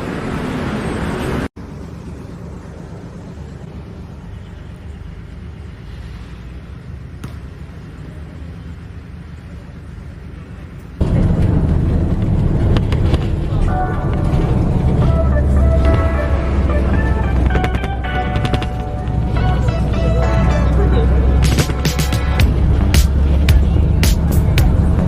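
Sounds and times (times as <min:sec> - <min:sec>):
vehicle rumbling: 0:00.0 - 0:25.0.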